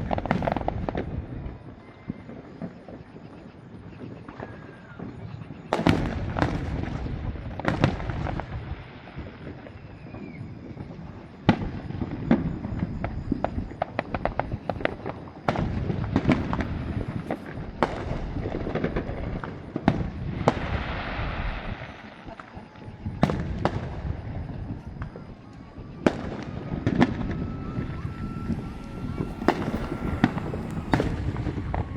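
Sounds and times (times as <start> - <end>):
firework crackles: 0.0 - 31.9
firework shells bursting: 24.9 - 31.9.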